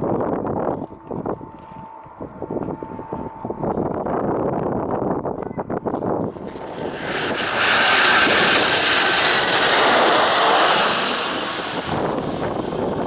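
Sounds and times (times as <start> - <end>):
high engine whine: 6.0 - 13.0
jet engines roaring: 6.2 - 13.0.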